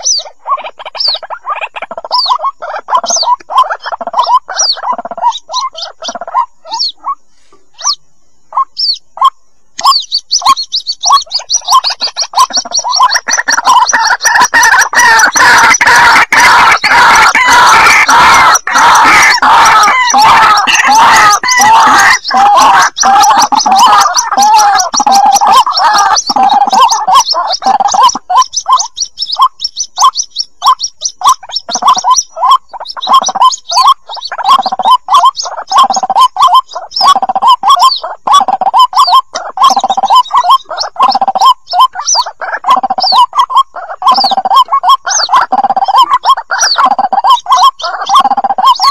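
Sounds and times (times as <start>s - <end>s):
waterhen chicks calling: 0.0s - 48.9s.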